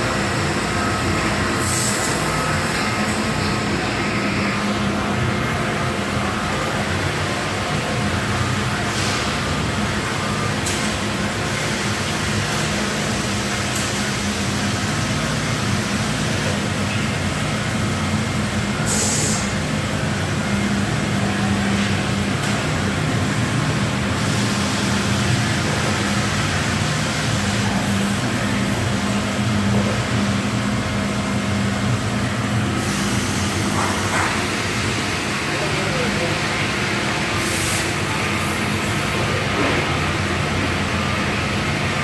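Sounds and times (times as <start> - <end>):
laser cutting machine humming: 0.0 - 42.0
air hiss: 1.3 - 4.8, 18.8 - 19.7, 32.8 - 35.4, 36.9 - 39.9.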